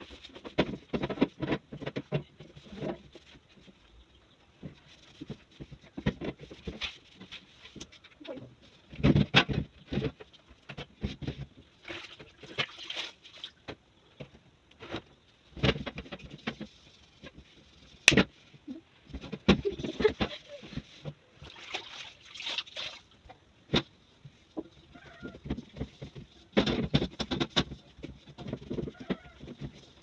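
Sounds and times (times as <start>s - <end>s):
knocks and clatters of items: 0.0s - 3.8s, 4.6s - 12.7s, 13.6s - 21.4s, 23.7s - 30.0s
water splashing and sloshing: 11.5s - 14.3s, 20.1s - 23.9s.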